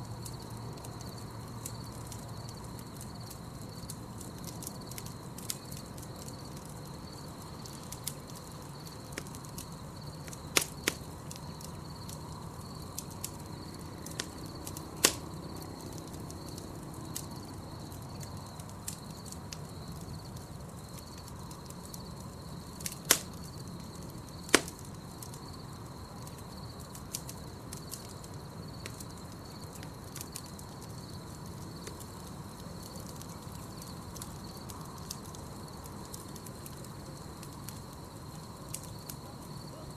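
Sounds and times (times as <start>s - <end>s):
campfire crackling: 0.0s - 39.9s
night insects trilling: 0.0s - 39.9s
wood popping and snapping: 10.2s - 11.5s, 14.0s - 15.4s, 22.8s - 23.5s, 24.4s - 24.9s.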